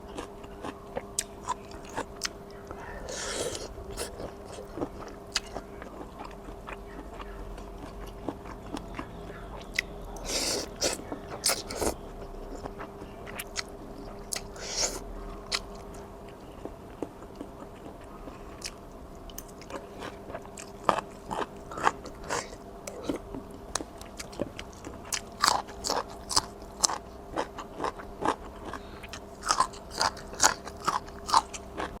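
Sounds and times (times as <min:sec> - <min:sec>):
steady low hum: 0:00.0 - 0:32.0
person eating noodle soup: 0:00.1 - 0:09.0, 0:09.6 - 0:15.9.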